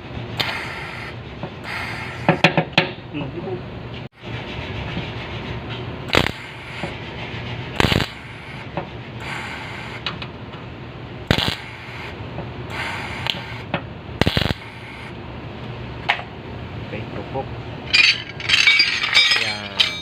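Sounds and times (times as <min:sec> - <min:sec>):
steady low hum: 0:00.0 - 0:20.0
metal clicks and scraping: 0:17.9 - 0:20.0.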